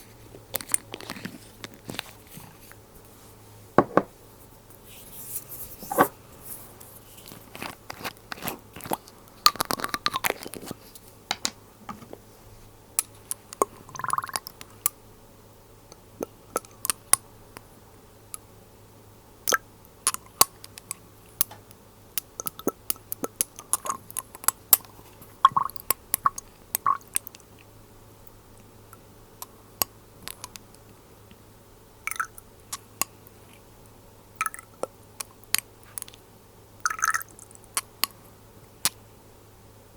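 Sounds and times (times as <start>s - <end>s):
glass bottle clicks and taps: 3.8s - 4.1s.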